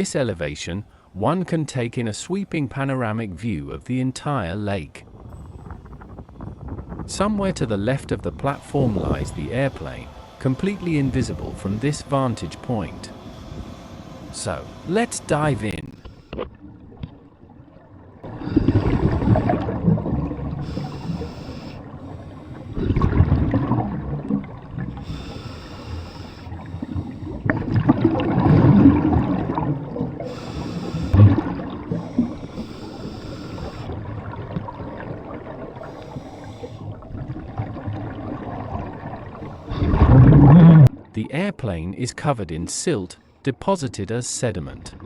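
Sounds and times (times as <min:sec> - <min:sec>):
exhaled bubbles rumbling: 0:05.1 - 0:41.2
regulator inhale hiss: 0:08.4 - 0:16.5, 0:18.3 - 0:19.8, 0:20.4 - 0:23.0, 0:24.8 - 0:27.6, 0:30.2 - 0:31.2, 0:31.8 - 0:34.0, 0:35.8 - 0:37.1, 0:39.3 - 0:40.0.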